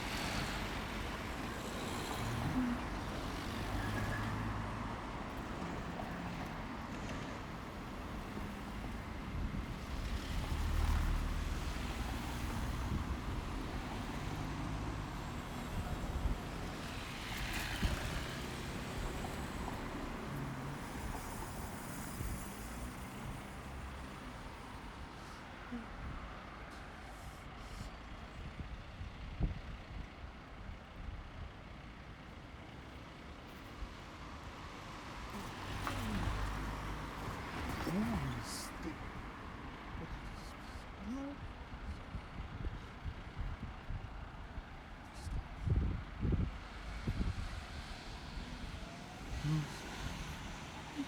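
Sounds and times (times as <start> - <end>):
vehicle engines: 0.0 - 51.0.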